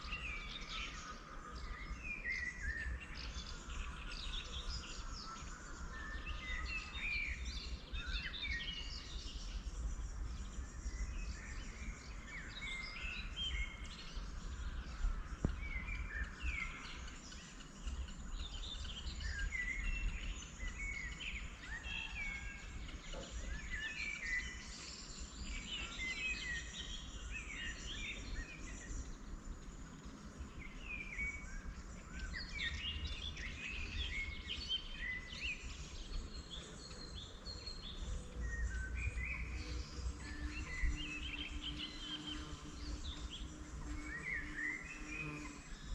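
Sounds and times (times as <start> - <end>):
small birds chirping and singing: 0.0 - 45.9.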